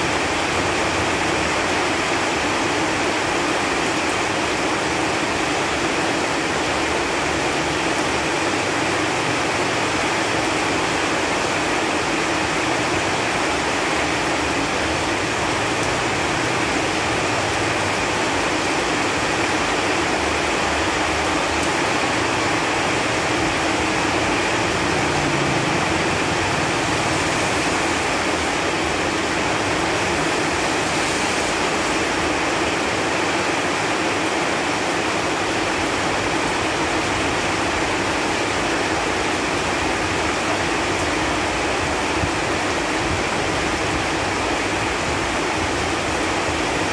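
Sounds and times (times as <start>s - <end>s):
rain falling on leaves: 0.0s - 46.9s.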